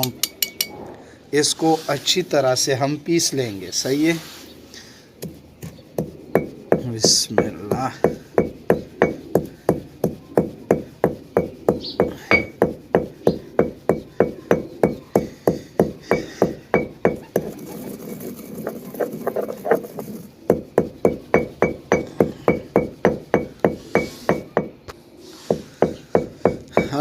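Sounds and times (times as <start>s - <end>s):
pestle pounding in a mortar: 5.2s - 18.0s, 18.6s - 24.8s, 25.5s - 27.0s
pestle grinding seeds: 5.2s - 24.9s, 25.5s - 27.0s.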